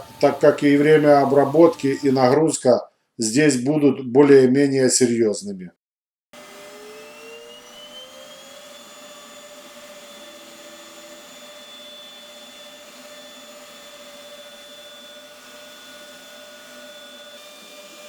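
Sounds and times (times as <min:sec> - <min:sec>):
router spindle whine: 0:00.0 - 0:02.4, 0:06.4 - 0:18.0.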